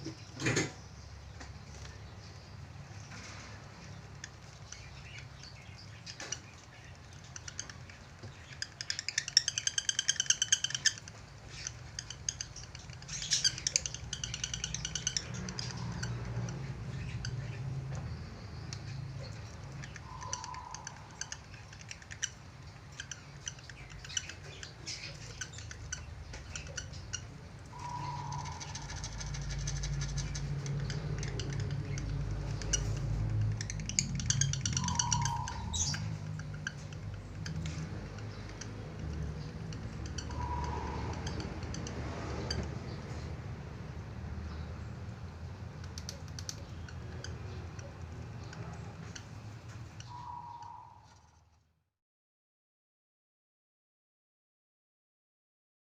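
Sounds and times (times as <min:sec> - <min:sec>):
budgerigar chattering and squawking: 0:04.2 - 0:43.2, 0:45.7 - 0:51.4.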